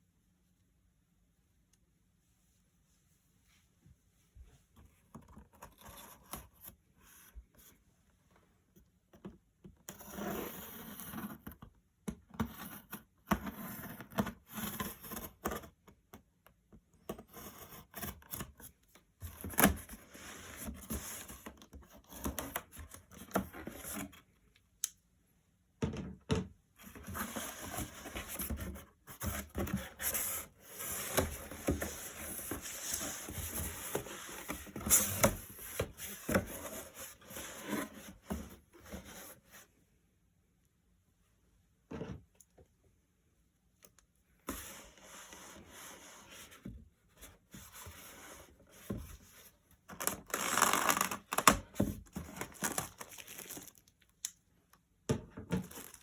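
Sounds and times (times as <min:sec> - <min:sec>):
handling noises scraping and rubbing: 0:26.8 - 0:39.8, 0:44.4 - 0:53.7.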